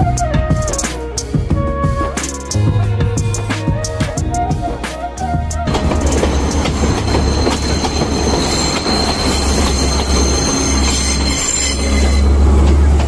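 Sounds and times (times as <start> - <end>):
train rumbling on rails: 1.4 - 13.0
train wheel squeal: 5.7 - 13.0.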